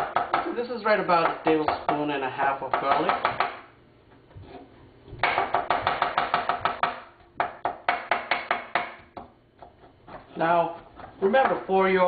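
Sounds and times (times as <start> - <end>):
knife chopping on cutting board: 0.0 - 0.5, 5.2 - 11.6.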